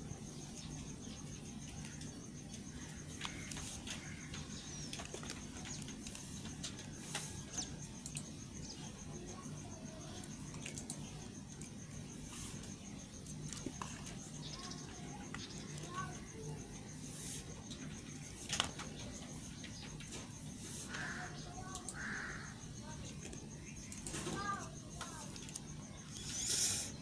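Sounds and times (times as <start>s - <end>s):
crickets chirring: 0.0s - 27.0s.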